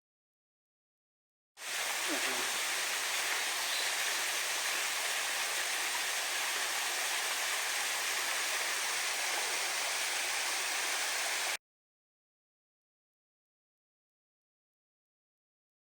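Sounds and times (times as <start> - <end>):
waterfall rushing: 1.6 - 11.6.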